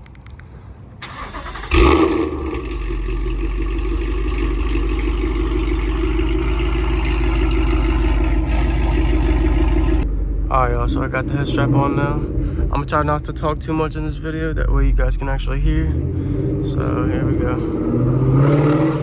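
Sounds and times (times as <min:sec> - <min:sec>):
starter motor cranking: 0:01.0 - 0:10.0
car engine revving and idling: 0:01.0 - 0:19.0.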